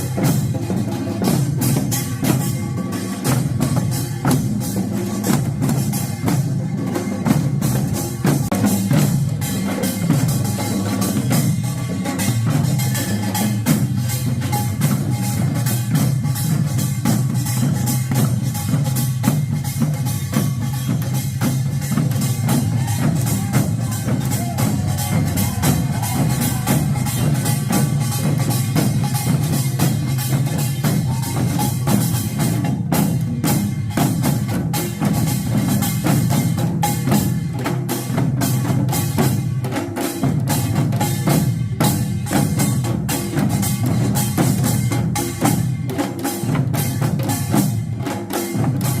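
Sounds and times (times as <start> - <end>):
percussion ensemble playing: 0.0 - 49.0.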